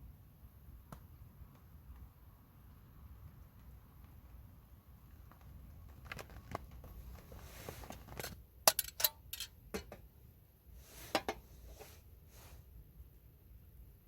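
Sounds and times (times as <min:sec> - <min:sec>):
tableware clicking and knocking: 0:08.7 - 0:10.0.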